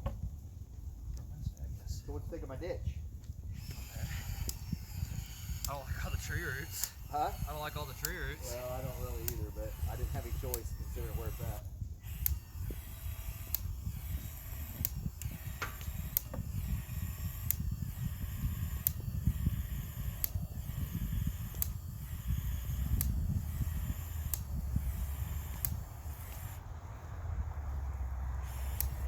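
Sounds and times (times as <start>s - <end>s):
steady low rumble: 0.0s - 29.0s
sharp regular click: 3.7s - 26.6s.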